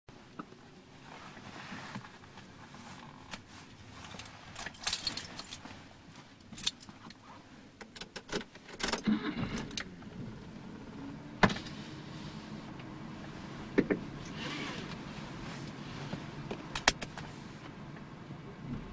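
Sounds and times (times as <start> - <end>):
car engine starting and idling: 2.2 - 18.9
car keys jangling: 4.6 - 5.8, 6.4 - 7.1.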